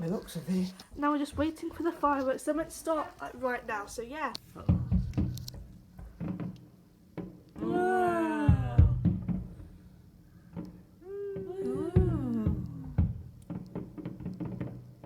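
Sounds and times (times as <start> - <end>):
distant fireworks thumps: 0.9 - 15.0
person exclaiming wow: 7.6 - 9.1, 11.0 - 13.0.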